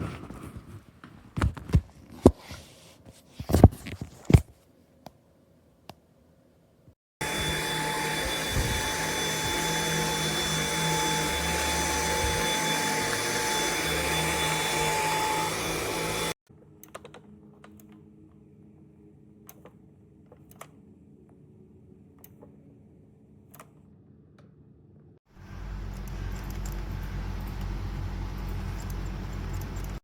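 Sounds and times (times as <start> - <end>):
vacuum cleaner whining: 7.2 - 16.4.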